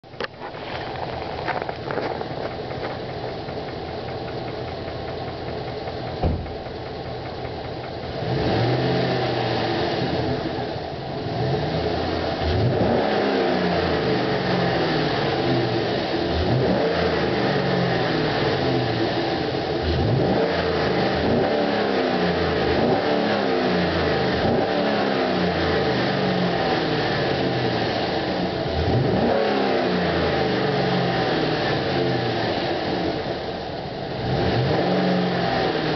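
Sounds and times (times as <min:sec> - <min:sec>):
pickup engine idling and revving: 0:00.0 - 0:35.9
sharp knock: 0:05.8 - 0:07.4.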